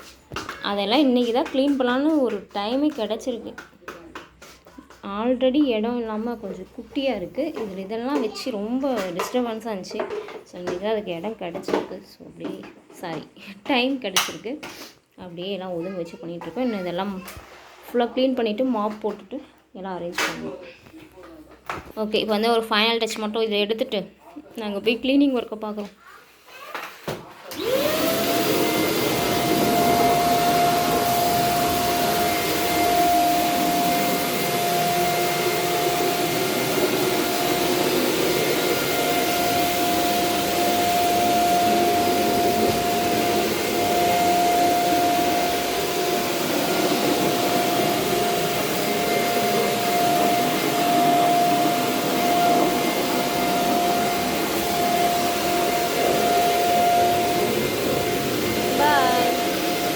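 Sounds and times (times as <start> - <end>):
vacuum cleaner motor whine: 27.4 - 59.9
vacuum cleaner rushing hiss: 27.5 - 59.9.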